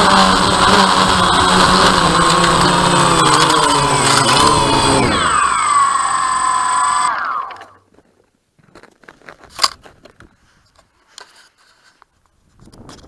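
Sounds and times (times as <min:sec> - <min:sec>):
drone motors whining down: 0:00.0 - 0:07.8.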